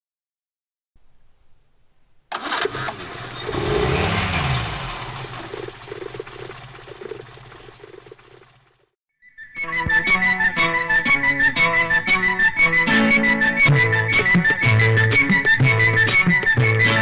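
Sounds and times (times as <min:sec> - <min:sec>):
car engine starting and revving: 0:02.3 - 0:08.9.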